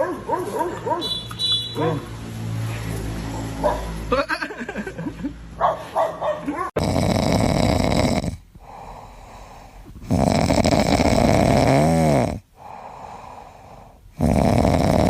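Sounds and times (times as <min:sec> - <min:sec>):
pet snoring: 0:06.8 - 0:15.0
quiet breaths: 0:08.3 - 0:11.4, 0:12.4 - 0:14.6.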